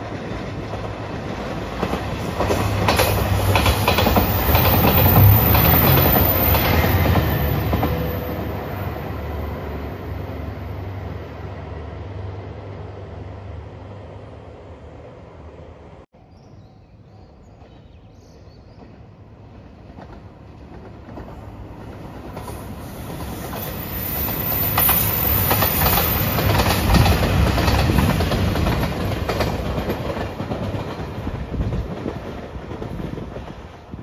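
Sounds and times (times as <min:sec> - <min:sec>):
train wheels clacking on rail joints: 0:00.6 - 0:08.2, 0:19.8 - 0:33.8.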